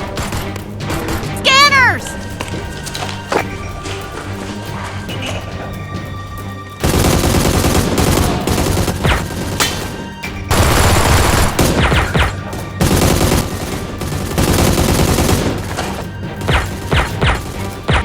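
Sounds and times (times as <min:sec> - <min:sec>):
automatic gunfire: 0:06.8 - 0:18.0.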